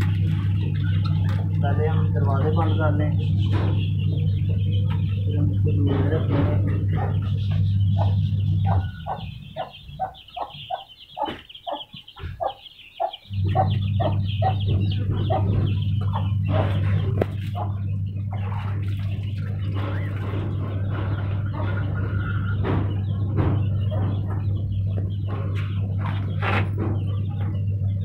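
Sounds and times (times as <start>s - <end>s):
steady low hum: 0.0s - 28.0s
bird calling rapidly: 6.2s - 27.7s.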